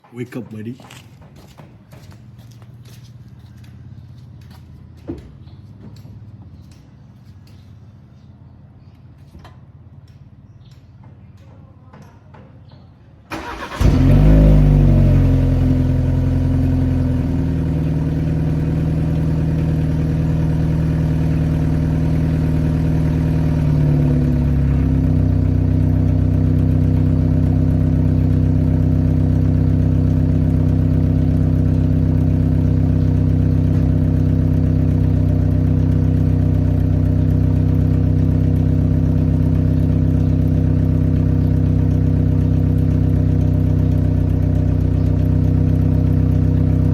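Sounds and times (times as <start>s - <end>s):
car engine starting and idling: 13.3s - 46.9s.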